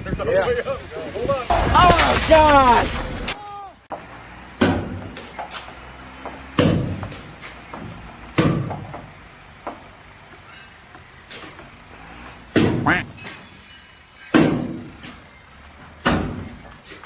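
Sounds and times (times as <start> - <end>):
heavy thuds and knocks: 4.6 - 5.5, 6.2 - 9.9, 12.5 - 13.2, 14.3 - 15.2, 16.0 - 16.8.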